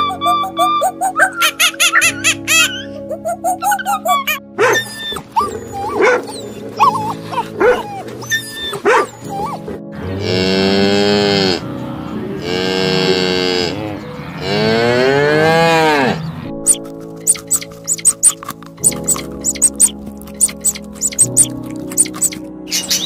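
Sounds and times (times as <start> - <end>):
dog yipping and whining: 0.0 - 9.7, 16.6 - 23.0
soft background music: 0.0 - 23.0
cow mooing: 10.0 - 16.4.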